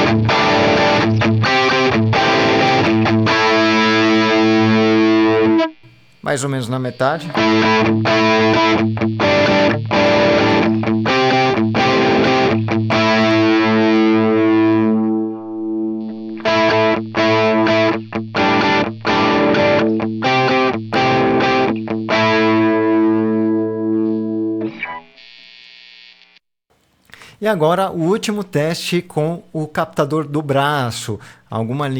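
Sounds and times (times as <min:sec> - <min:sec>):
distorted electric guitar chords: 0:00.0 - 0:06.2, 0:06.9 - 0:25.6.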